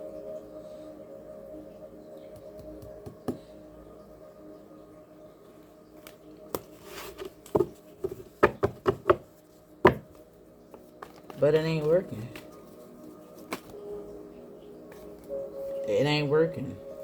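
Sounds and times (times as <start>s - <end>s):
soft ambient music: 0.0s - 17.0s
sharp taps and knocks: 7.5s - 9.2s.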